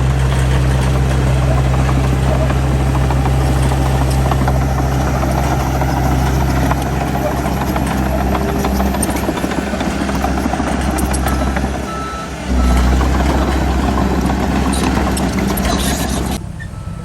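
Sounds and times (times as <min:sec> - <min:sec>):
diesel machine throbbing drone: 0:00.0 - 0:17.0.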